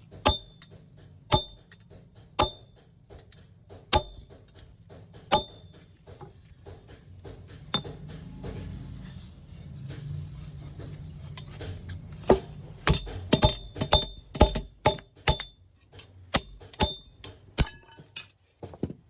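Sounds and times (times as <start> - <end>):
metal-on-metal strikes ringing: 0.0 - 3.0, 3.7 - 6.8, 7.4 - 8.8, 12.3 - 18.3.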